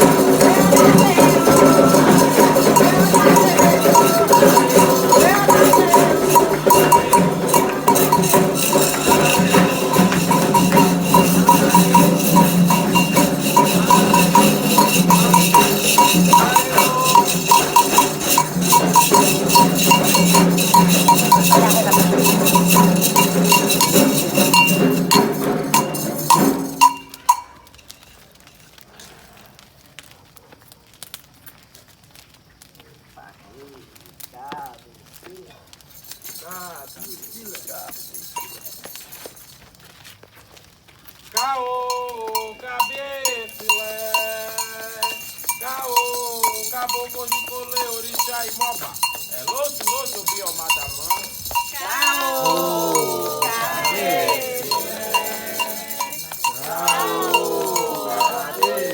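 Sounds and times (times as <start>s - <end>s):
voices singing: 0.0s - 27.2s, 41.4s - 58.9s
fast hand percussion: 0.0s - 27.8s, 35.9s - 39.6s, 41.4s - 58.9s.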